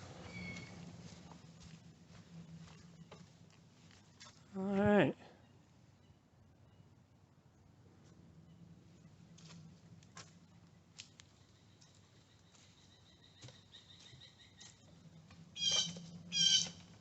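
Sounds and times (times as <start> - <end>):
bird squawking: 15.6 - 16.8.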